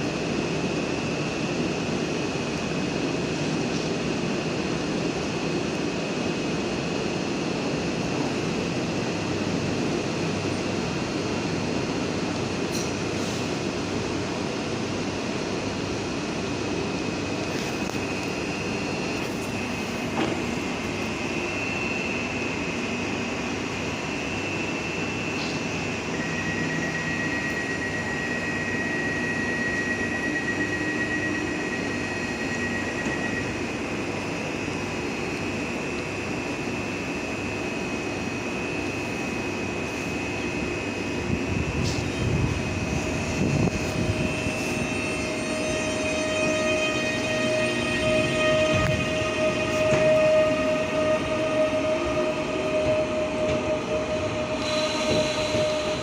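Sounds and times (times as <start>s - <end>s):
electric train humming: 0.0s - 56.0s
high whine: 17.2s - 56.0s.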